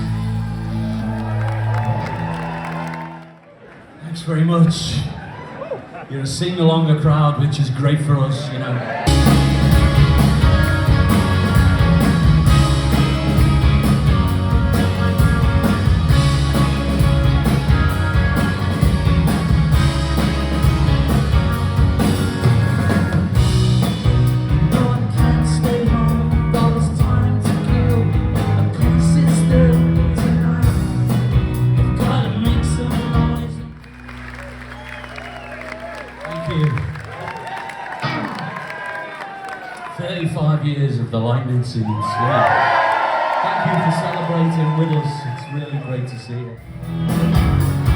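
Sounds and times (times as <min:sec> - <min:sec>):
live rock band playing: 0:00.0 - 0:02.2, 0:09.1 - 0:33.7, 0:46.6 - 0:47.9.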